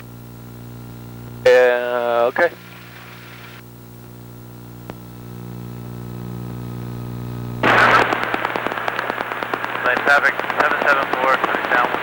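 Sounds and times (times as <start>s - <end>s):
crackling radio transmission: 0.0s - 12.0s
airplane engines droning: 7.6s - 12.0s.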